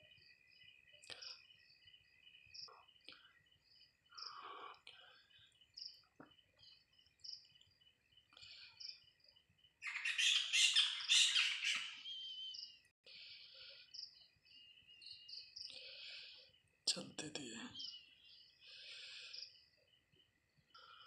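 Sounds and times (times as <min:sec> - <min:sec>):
crickets chirping: 0:00.0 - 0:16.8
harsh bird squawk: 0:09.8 - 0:12.5.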